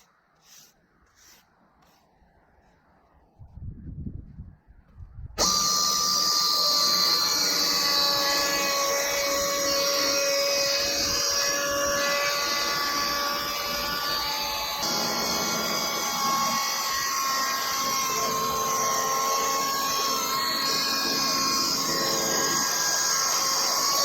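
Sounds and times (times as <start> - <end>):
electric chainsaw sawing log: 5.4 - 24.0.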